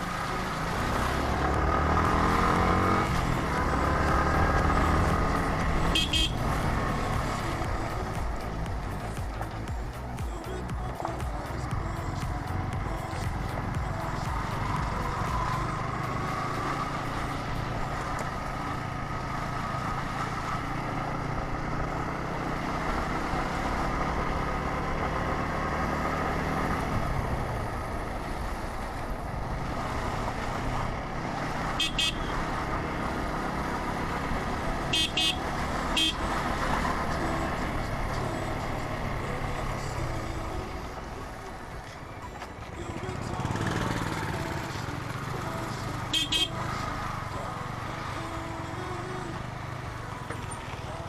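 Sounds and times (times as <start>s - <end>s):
motorcycle engine running: 0.0s - 42.0s, 42.6s - 51.0s
wind and road noise: 0.0s - 51.0s
vehicle horn toots: 5.8s - 6.5s, 31.8s - 32.4s, 34.9s - 36.3s, 46.1s - 46.6s.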